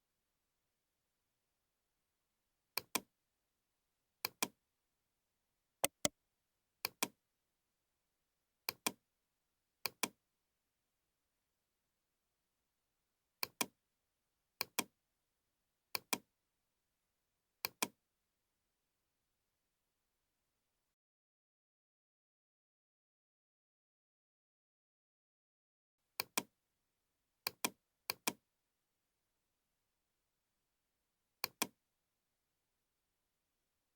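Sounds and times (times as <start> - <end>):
mouse button double-clicks: 5.8 - 6.1.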